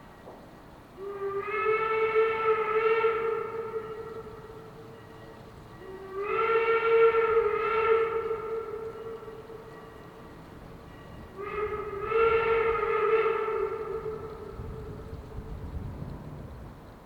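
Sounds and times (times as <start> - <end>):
steam whistle blasts: 1.0 - 10.3, 10.9 - 15.0.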